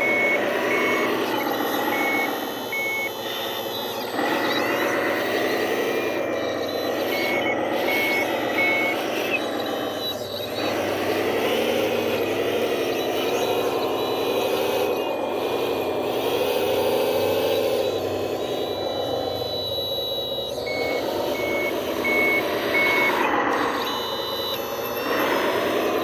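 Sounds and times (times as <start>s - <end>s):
diesel engine of heavy machine: 0.0s - 26.0s
reversing alarm beeping: 0.0s - 26.0s.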